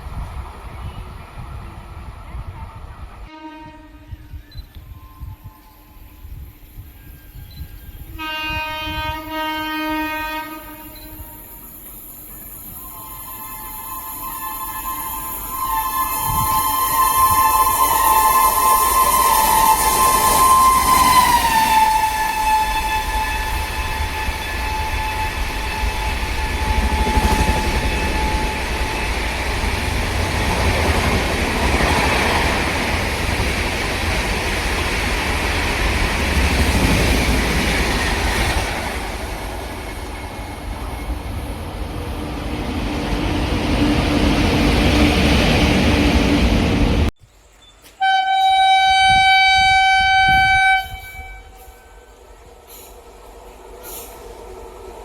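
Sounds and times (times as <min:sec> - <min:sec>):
train passing with heavy rumble: 0:00.0 - 0:47.1, 0:47.9 - 0:55.0
train horn: 0:03.2 - 0:06.2, 0:08.1 - 0:11.8, 0:12.8 - 0:31.9, 0:48.0 - 0:52.2.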